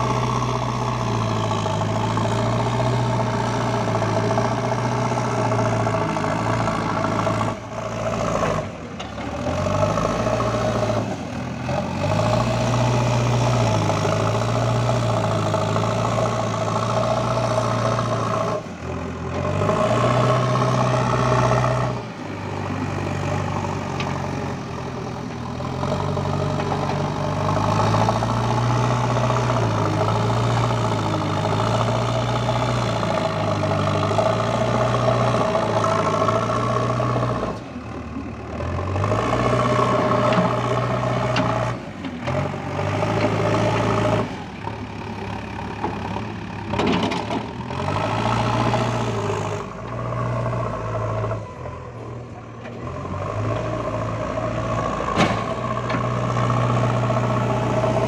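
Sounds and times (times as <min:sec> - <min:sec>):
diesel engine under varying load: 0:00.0 - 0:58.0.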